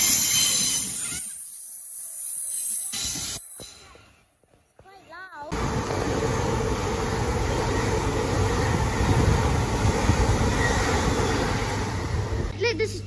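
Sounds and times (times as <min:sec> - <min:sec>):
train rumbling past: 0:05.5 - 0:12.6.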